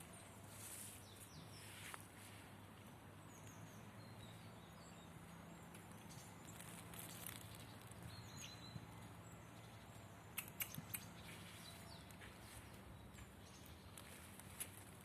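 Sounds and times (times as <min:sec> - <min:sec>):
faint outdoor nature ambience: 0:00.0 - 0:15.0
sharp clicks: 0:10.3 - 0:11.1.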